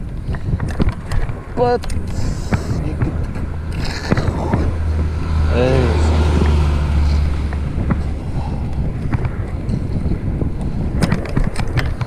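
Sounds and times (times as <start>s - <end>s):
road rumble: 0.0s - 12.0s
wind rushing over microphone: 0.0s - 12.0s
sharp clicks or rattles: 0.6s - 4.7s, 11.0s - 12.0s.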